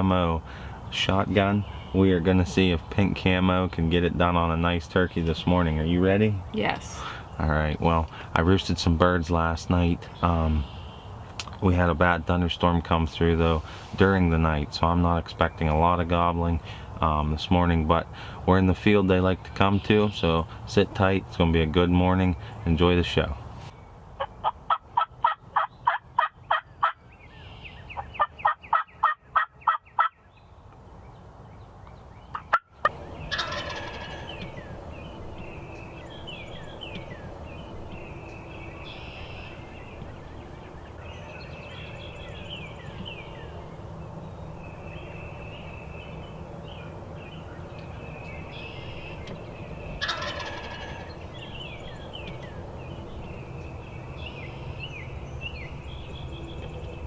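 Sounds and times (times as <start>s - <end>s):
small birds chirping: 0.0s - 57.0s
steady outdoor hiss: 0.0s - 57.0s
wild turkey gobbling: 24.2s - 27.0s, 27.9s - 30.2s, 32.3s - 34.8s, 50.0s - 51.2s.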